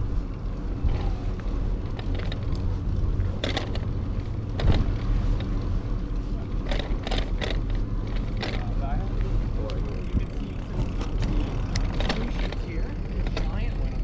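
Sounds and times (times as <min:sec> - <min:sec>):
bicycle rolling: 0:00.0 - 0:14.0
wind on microphone: 0:10.0 - 0:13.1.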